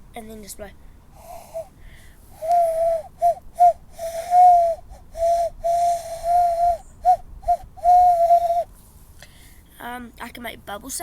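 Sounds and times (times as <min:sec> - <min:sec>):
cupped-hand whistle hooting: 0:01.2 - 0:08.7.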